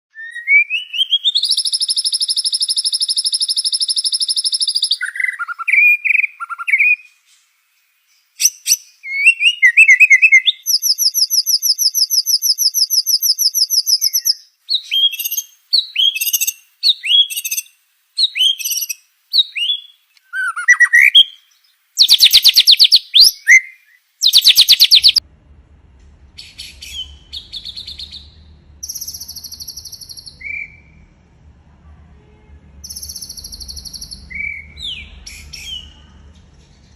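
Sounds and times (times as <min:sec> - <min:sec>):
bird singing trills: 0:08.4 - 0:25.2, 0:26.4 - 0:31.0, 0:32.9 - 0:36.0
buzzy bird trills: 0:24.2 - 0:25.2, 0:26.4 - 0:30.9
faint low hum: 0:24.8 - 0:36.9.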